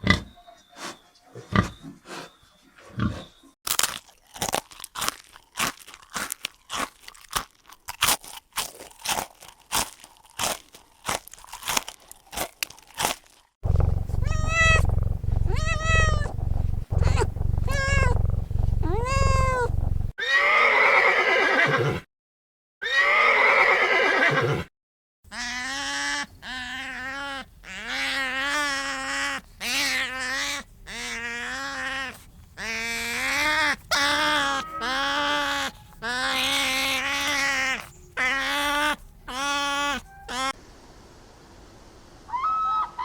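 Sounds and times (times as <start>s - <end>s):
crisp crunching clicks: 3.7s - 20.1s
loud low rumble: 13.6s - 20.1s
cat meowing: 13.7s - 20.1s, 25.3s - 40.5s.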